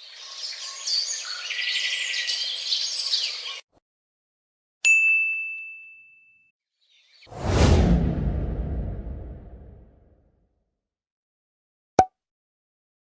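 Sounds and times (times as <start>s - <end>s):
birds chirping: 0.0s - 3.6s.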